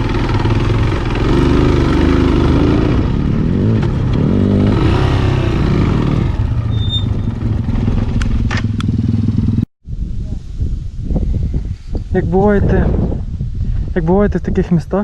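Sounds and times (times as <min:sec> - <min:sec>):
off-road motorcycle engine running: 0:00.0 - 0:09.7.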